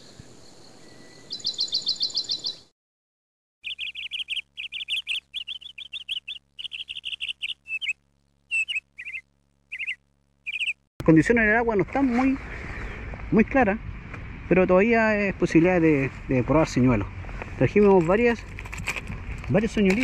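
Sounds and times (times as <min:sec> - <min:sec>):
high bird chirps: 0:00.8 - 0:02.7, 0:03.6 - 0:10.9
bird trilling: 0:01.3 - 0:02.7, 0:03.6 - 0:10.9.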